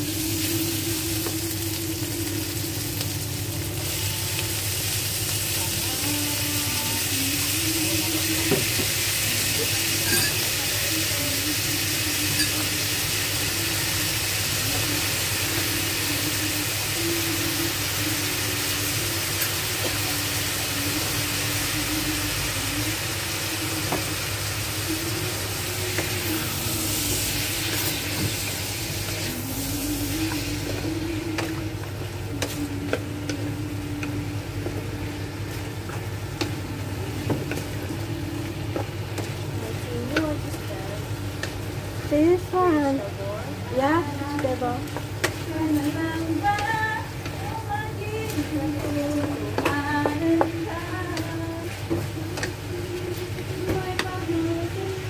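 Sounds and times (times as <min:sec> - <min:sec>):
potatoes sizzling in oil: 0:00.0 - 0:55.0.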